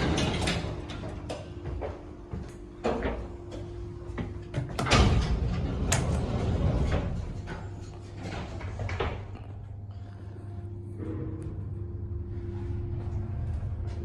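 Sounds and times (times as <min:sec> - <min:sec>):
lift door clatter: 0:00.0 - 0:01.5, 0:04.6 - 0:09.4
lift doors sliding: 0:00.0 - 0:01.6, 0:04.5 - 0:09.5.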